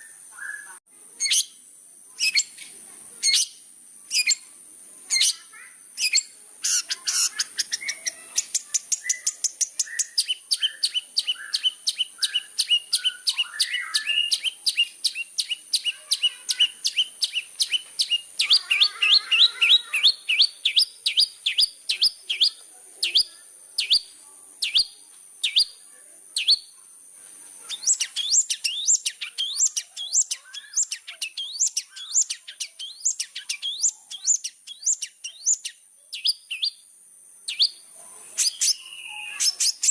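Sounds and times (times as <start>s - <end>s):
bird song of sharp chips: 0.0s - 4.5s, 5.1s - 25.8s, 26.4s - 26.7s, 27.6s - 36.8s, 37.5s - 39.9s.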